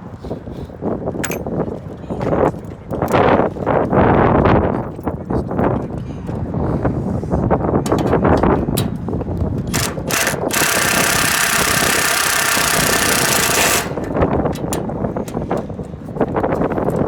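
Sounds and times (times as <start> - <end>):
handling clicks and knocks: 1.2 - 1.6
power drill running: 9.7 - 14.0.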